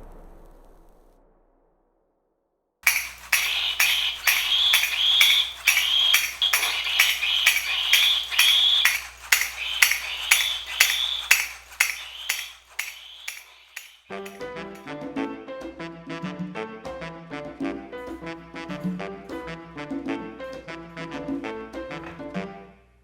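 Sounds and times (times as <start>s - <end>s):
high squeal: 2.8s - 14.4s
toy monkey clashing cymbals: 2.8s - 14.5s.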